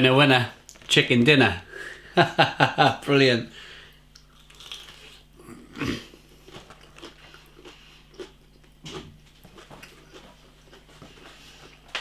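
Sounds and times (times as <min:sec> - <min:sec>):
person chewing crunchy food: 0:04.0 - 0:12.0.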